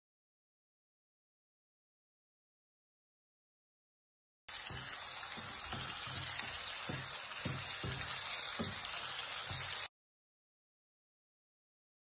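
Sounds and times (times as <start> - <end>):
spatula scraping and knocking pan: 4.5 - 9.9
vegetables sizzling in pan: 4.5 - 9.9.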